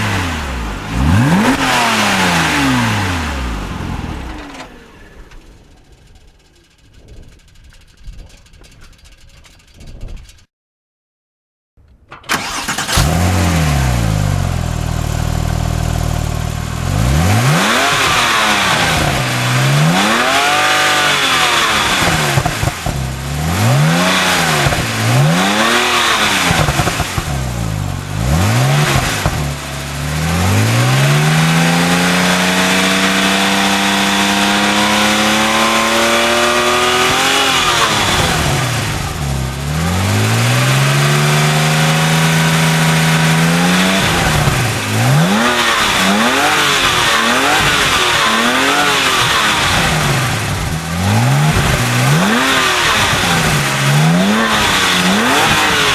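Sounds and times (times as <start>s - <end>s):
car engine starting and revving: 0.0s - 6.4s, 12.3s - 55.9s.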